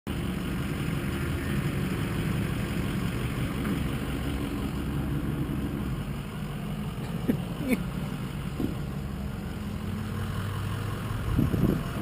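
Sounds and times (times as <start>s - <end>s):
motorcycle engines idling: 0.1s - 12.0s.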